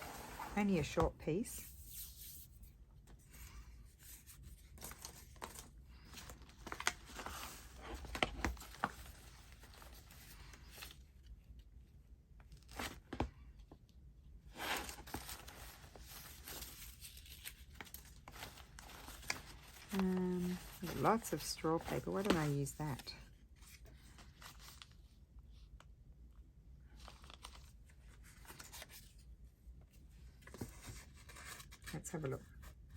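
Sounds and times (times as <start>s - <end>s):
paper rustling: 14.8s - 25.0s.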